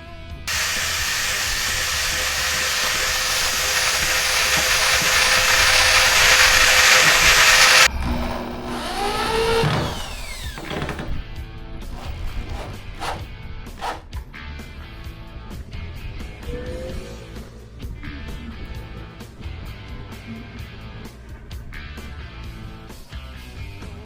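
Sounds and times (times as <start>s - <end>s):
handheld power tool running: 0.5s - 11.2s, 11.9s - 14.1s.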